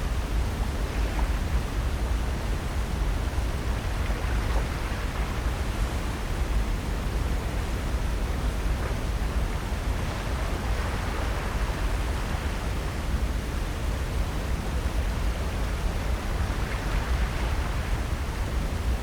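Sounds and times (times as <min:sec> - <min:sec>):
seaside rush with low rumble: 0:00.0 - 0:19.0.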